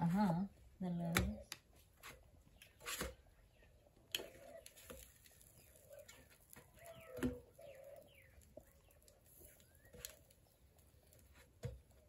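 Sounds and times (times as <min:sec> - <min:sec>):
small birds chirping: 0:00.0 - 0:12.0
dove cooing: 0:04.2 - 0:04.7, 0:05.8 - 0:08.4.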